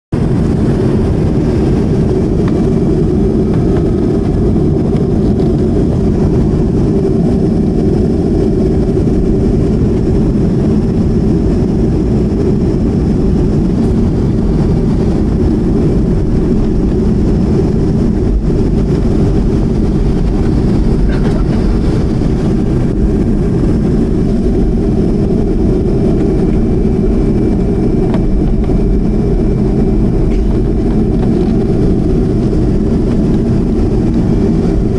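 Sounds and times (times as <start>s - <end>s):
jet engines rumbling: 0.1s - 34.9s.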